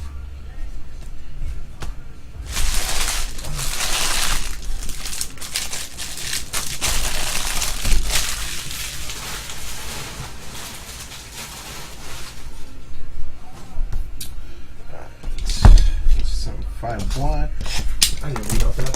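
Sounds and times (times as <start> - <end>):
packaging being crushed and crumpled: 2.4 - 12.6
plastic wrap crinkling: 2.4 - 12.8.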